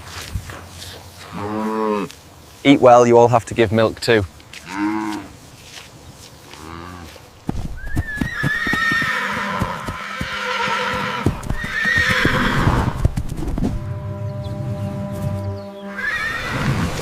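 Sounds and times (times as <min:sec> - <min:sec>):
horse whinnying: 0:07.8 - 0:13.0, 0:15.9 - 0:16.9.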